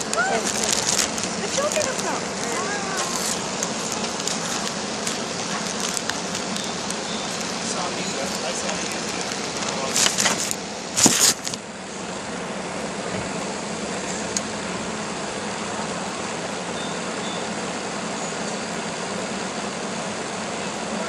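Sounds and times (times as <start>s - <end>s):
crackling: 0.0s - 11.6s
engine-like hum: 0.0s - 21.0s.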